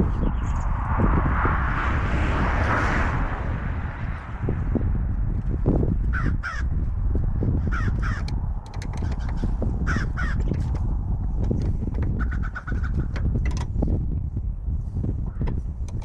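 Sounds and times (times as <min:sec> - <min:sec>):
steady low rumble: 0:00.0 - 0:16.0
bird calling: 0:12.1 - 0:13.2.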